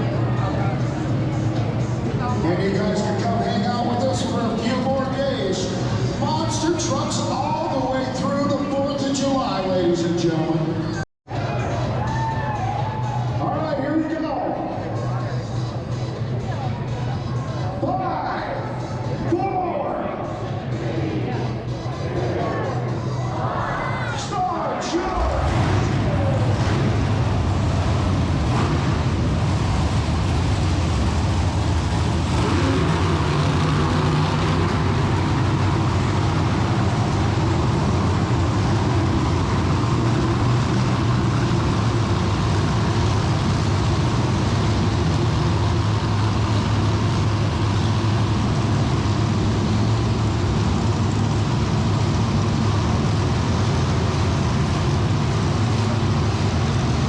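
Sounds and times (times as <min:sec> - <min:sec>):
truck engine revving: 0:20.3 - 0:57.0.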